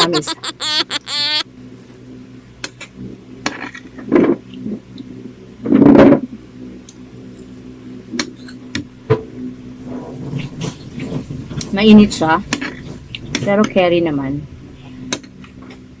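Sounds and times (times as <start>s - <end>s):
mouth eating sounds: 0.0s - 1.4s.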